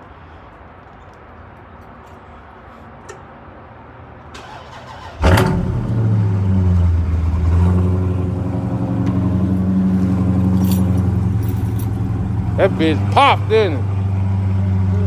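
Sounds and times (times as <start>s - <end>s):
car engine cranking: 4.4s - 15.0s
car engine idling: 5.2s - 15.0s.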